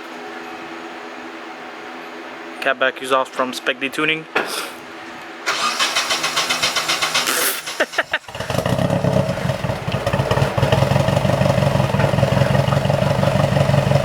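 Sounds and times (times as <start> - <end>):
car engine idling: 5.5 - 14.0
car starter cranking: 5.5 - 14.0.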